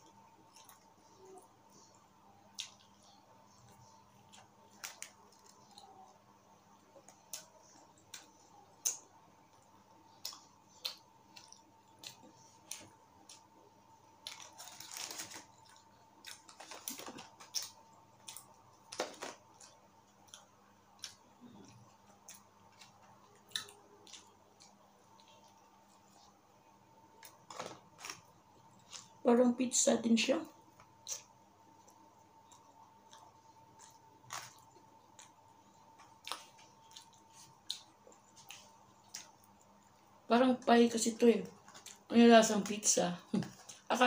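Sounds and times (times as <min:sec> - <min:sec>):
soft chewing with mouth clicks: 0:00.0 - 0:29.2, 0:30.7 - 0:40.2, 0:41.5 - 0:42.1
paper wrapper rustling: 0:14.3 - 0:15.8.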